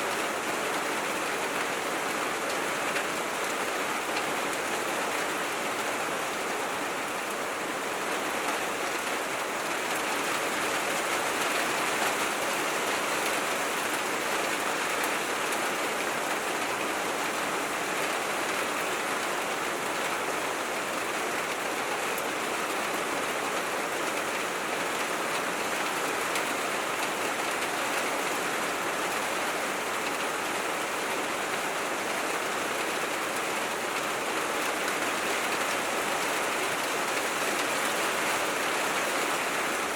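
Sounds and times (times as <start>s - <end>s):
rain on a tin roof: 0.0s - 39.9s.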